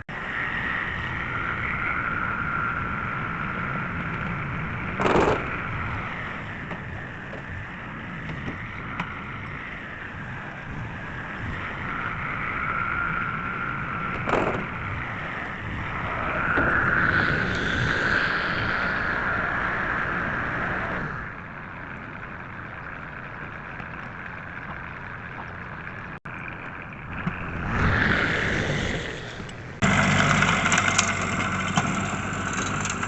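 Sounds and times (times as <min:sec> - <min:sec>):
machine whine: 0:00.0 - 0:33.0
tractor with manure spreader running: 0:29.8 - 0:33.0.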